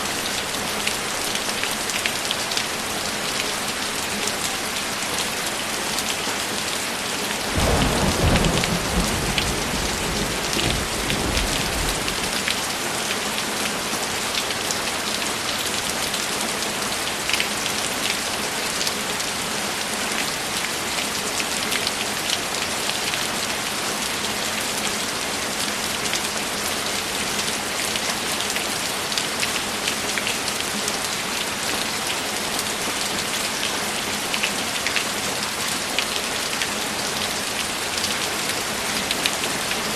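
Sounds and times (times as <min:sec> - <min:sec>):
steady rainfall: 0:00.0 - 0:39.9
low roll of thunder: 0:07.6 - 0:12.5.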